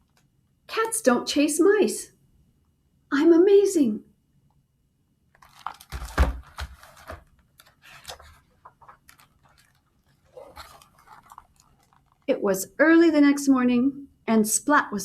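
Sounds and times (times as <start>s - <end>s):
paper pages rustling and turning: 5.3s - 12.3s.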